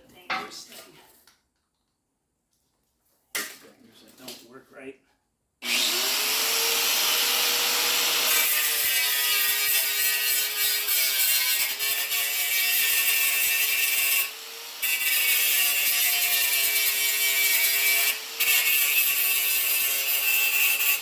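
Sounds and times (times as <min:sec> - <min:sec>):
electric grinder cutting steel: 0:05.6 - 0:21.0.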